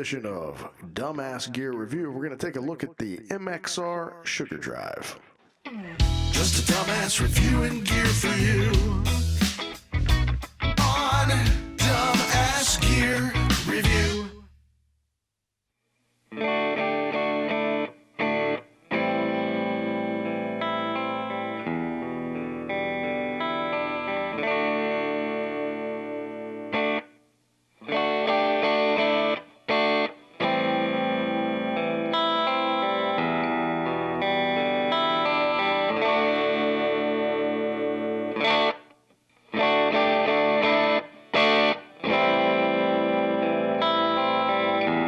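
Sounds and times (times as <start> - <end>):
overdriven electric guitar chords: 5.7 - 14.4, 16.4 - 27.1, 27.8 - 38.9, 39.5 - 45.0.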